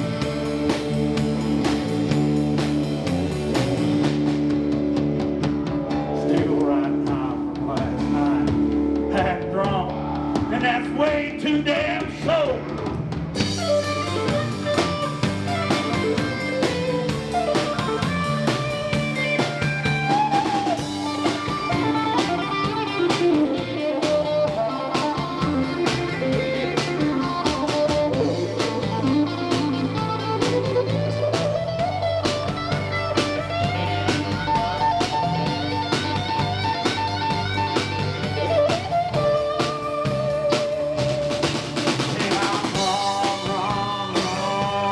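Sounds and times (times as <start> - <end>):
bass guitar: 0.0 - 44.9
drum kit: 0.0 - 44.9
lead guitar with sliding notes: 13.4 - 44.9.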